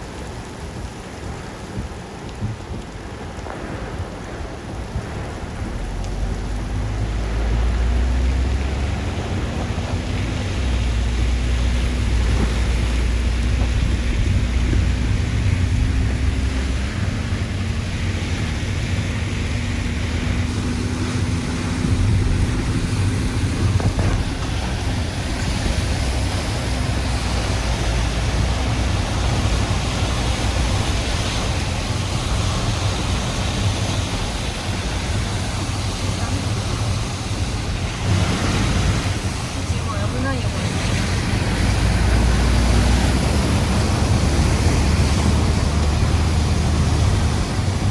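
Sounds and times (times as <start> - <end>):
heavy rain and wind: 0.0 - 47.9
low engine hum: 0.0 - 47.9.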